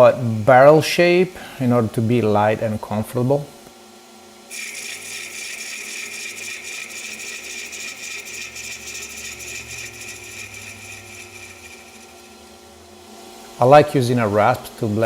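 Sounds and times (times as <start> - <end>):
lathe tool cutting wood: 4.5 - 12.7.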